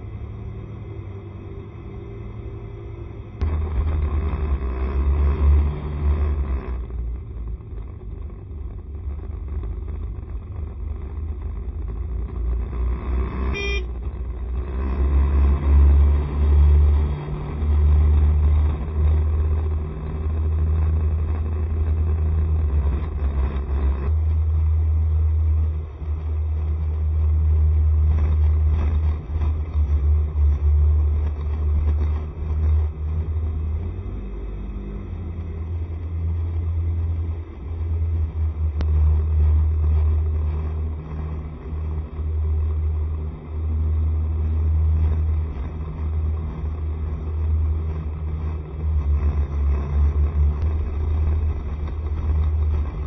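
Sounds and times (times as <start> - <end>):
road noise from scooter: 0.0 - 53.0
wind rumble: 0.0 - 53.0
vehicle horn: 13.5 - 14.0.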